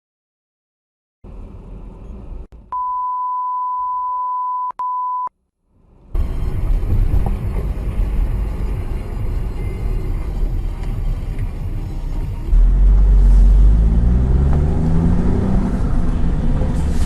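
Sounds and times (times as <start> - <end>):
car driving road noise: 1.3 - 2.7, 5.7 - 17.0
high beep: 2.7 - 5.3.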